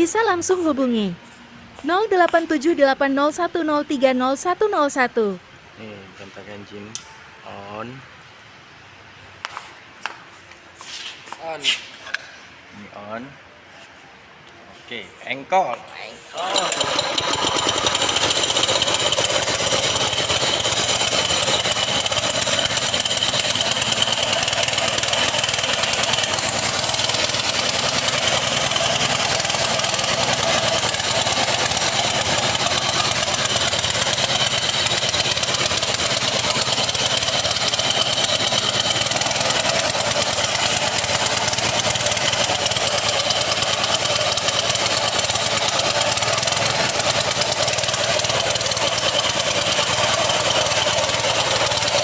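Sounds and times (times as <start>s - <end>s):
petrol engine running: 16.4s - 52.0s.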